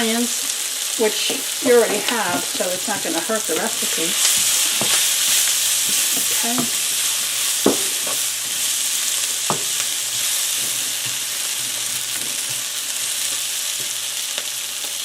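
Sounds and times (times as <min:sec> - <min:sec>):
onions sizzling in a pan: 0:00.0 - 0:15.0
utensil knocking against pan: 0:07.6 - 0:08.0.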